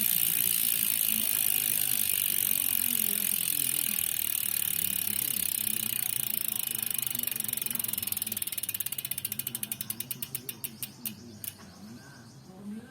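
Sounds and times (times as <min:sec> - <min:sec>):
bicycle hub ratcheting clicks: 0:00.0 - 0:11.6.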